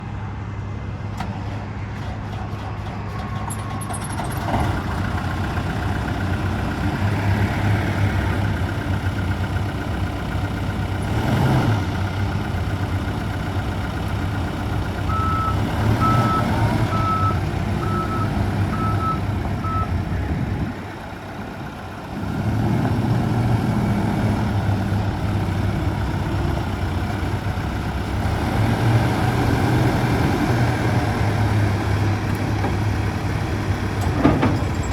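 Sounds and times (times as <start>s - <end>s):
diesel engine running: 0.0s - 34.9s
reversing alarm beeps: 15.1s - 19.9s.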